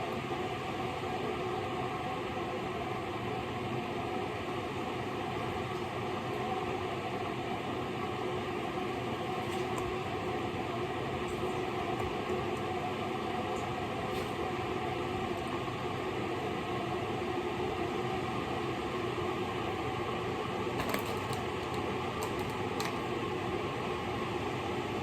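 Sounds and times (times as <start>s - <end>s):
faint hum: 0.0s - 25.0s.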